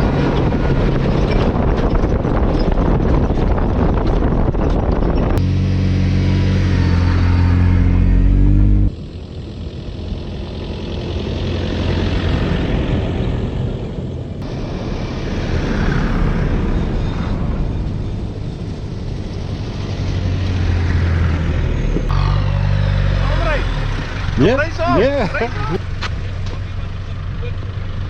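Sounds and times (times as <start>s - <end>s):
tyre and wind noise: 0.0s - 8.9s
low engine hum: 0.0s - 28.0s.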